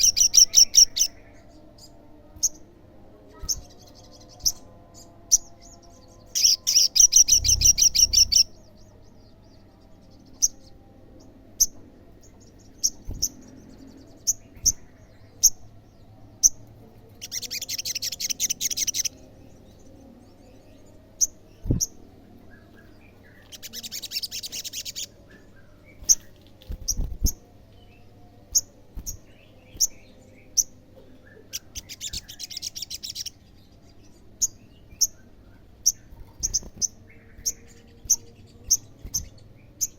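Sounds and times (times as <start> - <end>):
bird trilling: 6.4 - 8.5.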